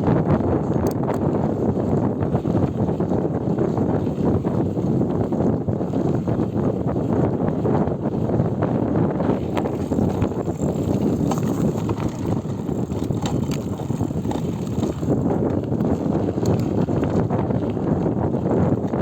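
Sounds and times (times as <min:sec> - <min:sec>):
wind buffeting microphone: 0:00.0 - 0:19.0
bike clicks and rattles: 0:00.3 - 0:06.7, 0:09.2 - 0:19.0
tyres rumbling: 0:09.2 - 0:18.1.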